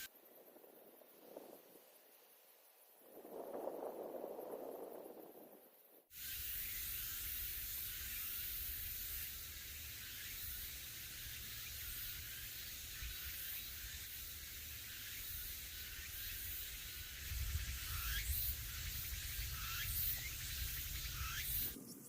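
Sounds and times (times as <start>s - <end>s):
outdoor hiss: 0.0s - 4.4s, 6.0s - 22.0s
wind buffeting microphone: 3.0s - 6.0s, 16.5s - 22.0s.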